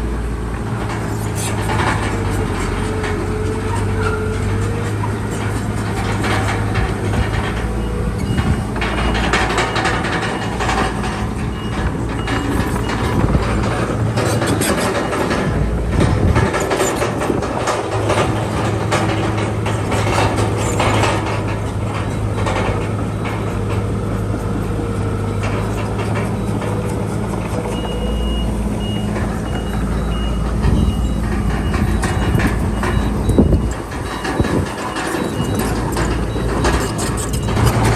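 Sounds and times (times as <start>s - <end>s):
crawler tracks clanking: 0.0s - 37.9s
diesel bulldozer engine: 0.0s - 37.9s
reversing alarm beeping: 6.8s - 15.4s, 20.0s - 37.9s.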